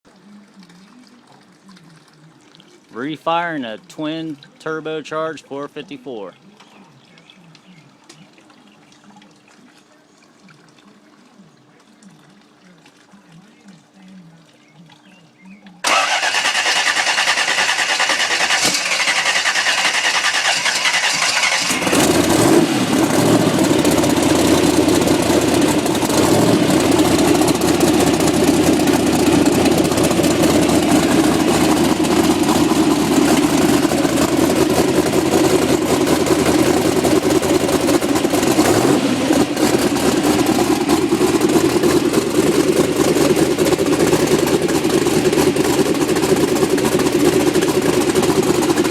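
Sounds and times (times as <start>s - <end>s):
engine running loudly: 15.8s - 48.9s
starter cranking: 15.8s - 48.9s.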